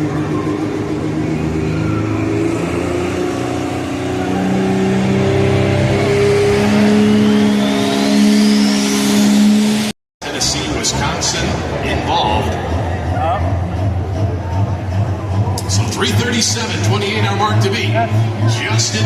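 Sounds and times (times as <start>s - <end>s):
turbocharger whistle: 0.0s - 9.9s
diesel engine running under load: 0.0s - 19.0s.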